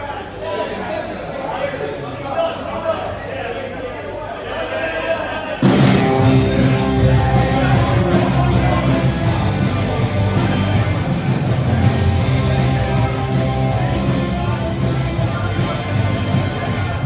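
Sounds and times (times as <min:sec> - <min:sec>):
electric guitar: 0:05.6 - 0:17.0
rock band playing live: 0:05.6 - 0:17.0.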